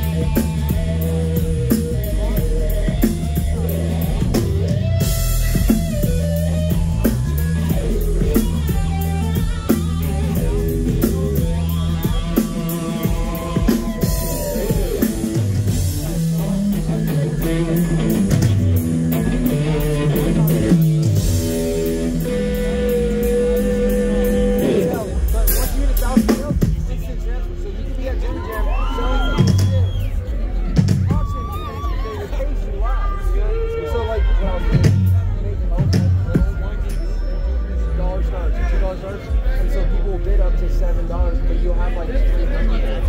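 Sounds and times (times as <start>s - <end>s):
electric guitar melody: 0.0s - 26.0s
bass line: 0.0s - 43.0s.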